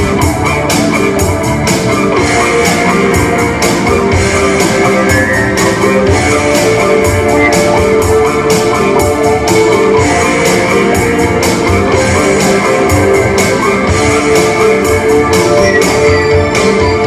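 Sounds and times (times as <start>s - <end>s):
drum beat: 2.9s - 15.5s.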